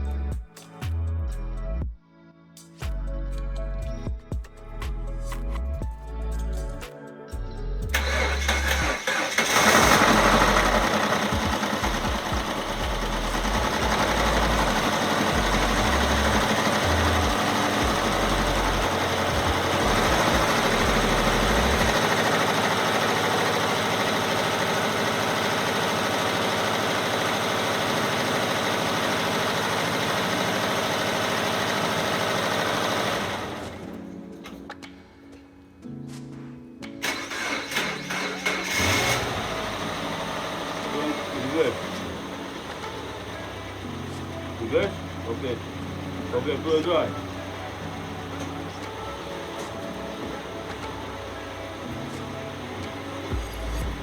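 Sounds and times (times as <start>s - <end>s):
car engine starting and running: 7.9s - 34.2s, 37.0s - 54.0s.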